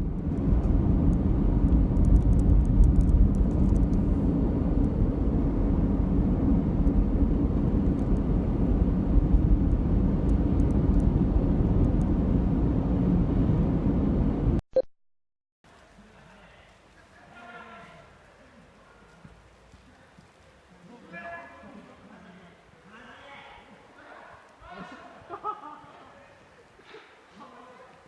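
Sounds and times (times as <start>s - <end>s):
car road and engine rumble: 0.0s - 14.6s.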